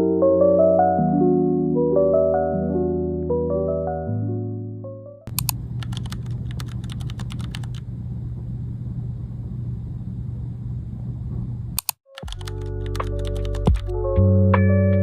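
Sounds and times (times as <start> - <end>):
typing on a keyboard: 5.3 - 7.8, 11.8 - 13.9
steady low hum: 5.3 - 11.8.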